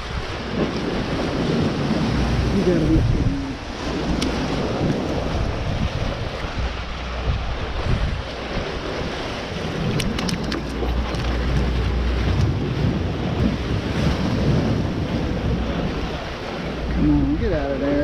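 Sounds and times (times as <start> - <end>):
surf washing against jetty: 0.0 - 18.0
wind buffeting microphone: 0.0 - 18.0.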